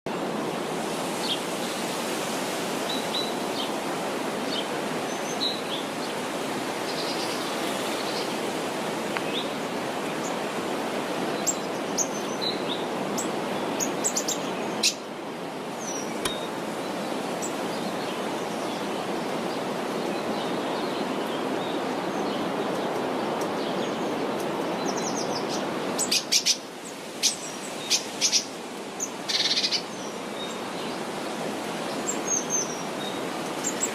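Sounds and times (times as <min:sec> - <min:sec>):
birds chirping: 0:15.8 - 0:19.1.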